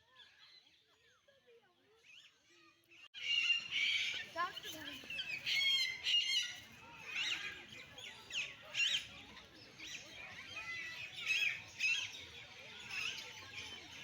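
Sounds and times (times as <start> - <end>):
birds chirping and calling: 3.2 - 14.0.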